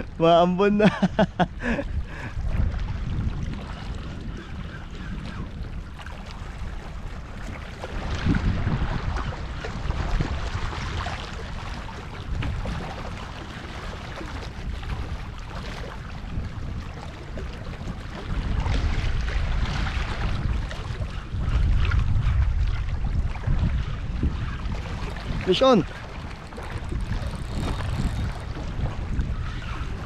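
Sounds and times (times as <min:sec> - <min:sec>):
wind buffeting microphone: 0:00.0 - 0:30.0
sea surf: 0:05.8 - 0:21.2, 0:23.3 - 0:30.0.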